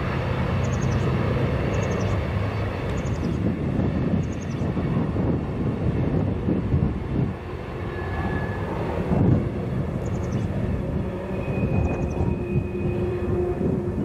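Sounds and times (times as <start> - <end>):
freight train wheels rumbling: 0.0 - 14.0
high wheel squeal: 7.9 - 8.8, 10.0 - 14.0.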